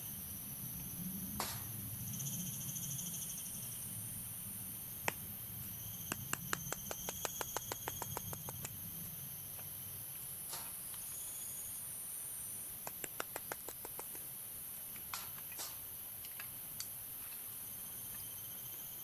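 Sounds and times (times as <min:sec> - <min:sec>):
high insect chirring: 0:05.6 - 0:08.8, 0:12.8 - 0:14.2
sharp clicks: 0:06.1 - 0:08.8, 0:12.8 - 0:14.2.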